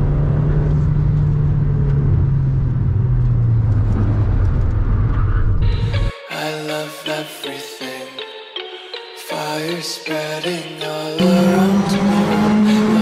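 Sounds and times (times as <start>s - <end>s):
car engine and road noise: 0.0s - 6.1s, 11.2s - 13.0s
music: 5.6s - 13.0s.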